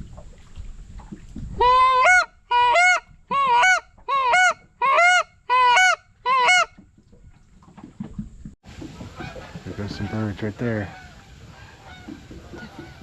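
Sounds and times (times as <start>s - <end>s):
goose honking: 1.6s - 6.7s.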